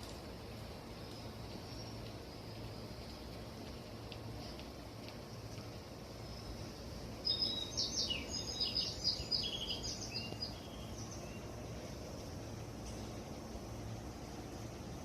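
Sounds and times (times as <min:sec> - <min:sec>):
low background hum: 0:00.0 - 0:15.0
songbird chirping and trilling: 0:06.2 - 0:15.0.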